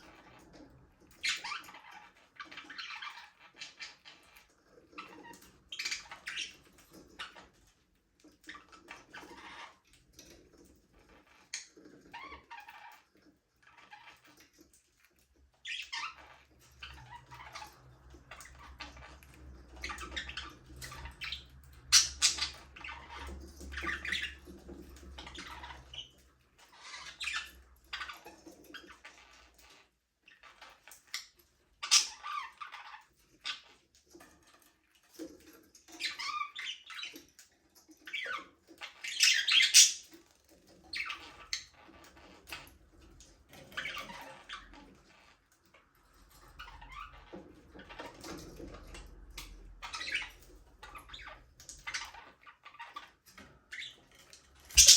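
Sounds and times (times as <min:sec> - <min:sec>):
budgerigars chirping: 0:19.8 - 0:24.6, 0:38.1 - 0:40.1.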